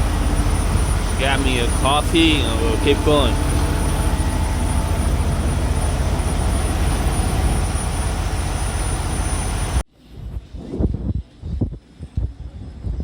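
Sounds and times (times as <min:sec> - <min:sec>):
diesel truck engine idling: 0:00.0 - 0:09.8
high whine: 0:00.0 - 0:10.3.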